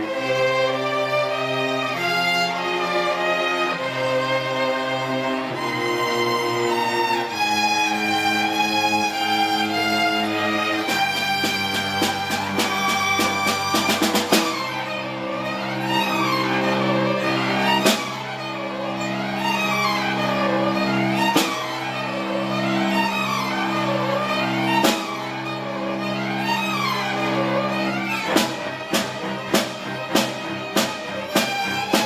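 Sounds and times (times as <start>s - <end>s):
bowed strings playing chords: 0.0s - 32.0s
percussion hits: 10.8s - 14.8s, 28.2s - 32.0s.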